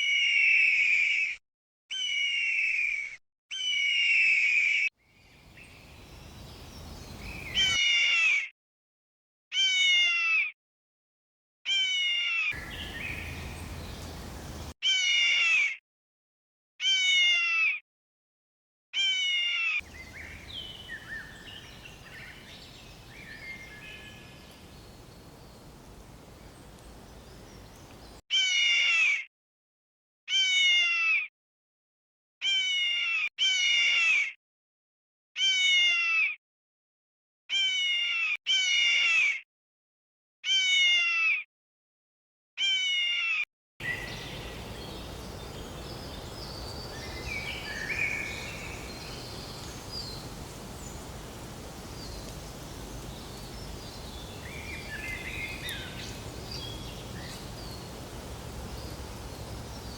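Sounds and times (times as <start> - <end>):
meow-like animal cry: 9.5 - 10.6, 11.7 - 12.5, 16.8 - 17.8, 19.0 - 19.8, 28.3 - 29.2, 30.3 - 31.3, 32.4 - 34.4, 35.4 - 36.4, 37.5 - 39.4, 40.4 - 41.5, 42.6 - 43.4.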